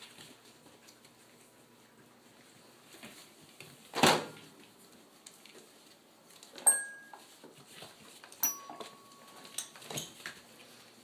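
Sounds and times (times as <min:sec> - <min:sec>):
puppies rustling scuffle: 0:00.0 - 0:11.0
sharp metallic clinks: 0:08.4 - 0:09.8.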